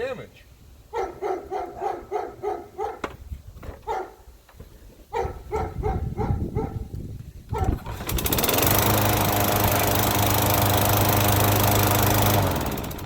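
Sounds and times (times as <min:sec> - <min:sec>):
dog barking: 0:00.9 - 0:03.1, 0:03.8 - 0:04.2, 0:05.1 - 0:06.9
lawn mower engine running: 0:07.5 - 0:13.0.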